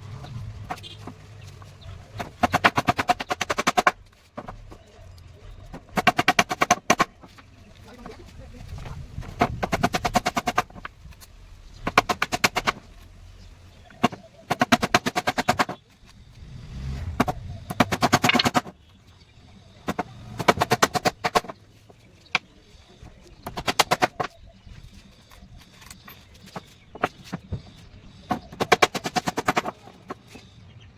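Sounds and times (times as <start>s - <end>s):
rapid knocks on wood: 2.1s - 4.8s, 5.7s - 7.4s, 8.8s - 10.9s, 11.8s - 12.9s, 13.9s - 15.8s, 17.2s - 18.8s, 19.9s - 21.6s, 23.4s - 24.4s, 26.4s - 30.3s.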